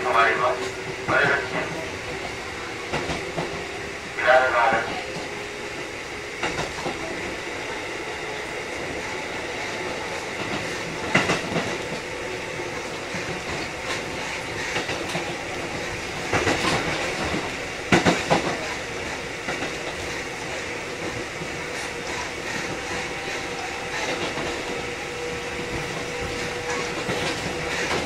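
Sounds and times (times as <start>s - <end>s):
electric train rolling: 0.0s - 28.0s
wheels clacking over rail joints: 8.9s - 28.0s.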